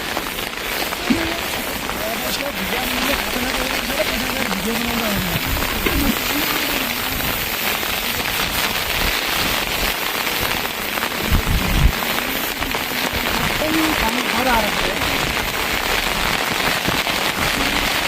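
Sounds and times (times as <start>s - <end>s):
steady rain: 0.0s - 18.0s
faint wavering voice-like tones: 0.9s - 8.4s
low thumps: 1.0s - 8.4s.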